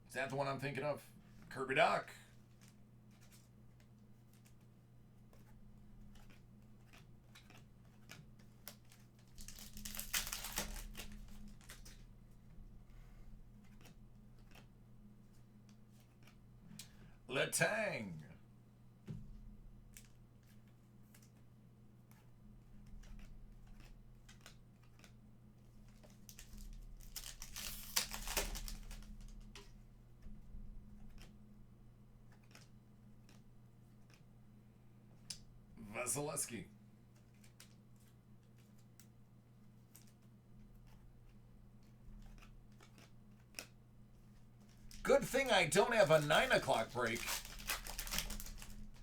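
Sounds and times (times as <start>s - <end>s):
cards ticking and sliding: 2.2s - 17.1s, 19.9s - 49.0s
cards clicking: 5.3s - 12.1s, 13.6s - 14.7s, 15.7s - 17.0s, 25.9s - 29.8s, 42.2s - 43.8s, 44.6s - 49.0s
wrapper crinkling and tearing: 6.2s - 12.0s, 25.9s - 29.6s, 44.7s - 49.0s.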